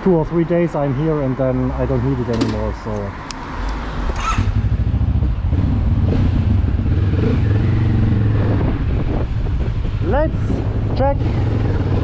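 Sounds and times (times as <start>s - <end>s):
motorcycle engine rumbling at low revs: 4.0s - 12.0s.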